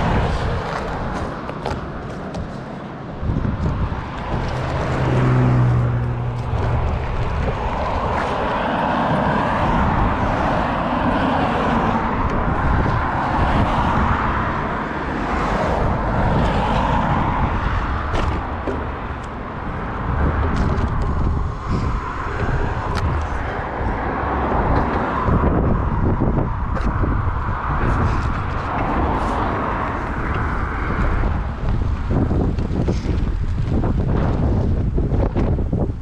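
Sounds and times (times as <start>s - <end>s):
wind noise while cycling: 0.0s - 36.0s
bicycle tyre noise: 15.1s - 36.0s.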